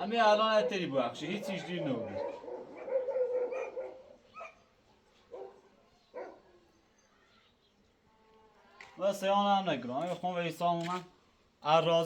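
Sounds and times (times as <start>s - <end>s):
drawn-out dog sound: 0.5s - 4.7s
dog barking: 1.8s - 4.6s, 5.3s - 6.6s.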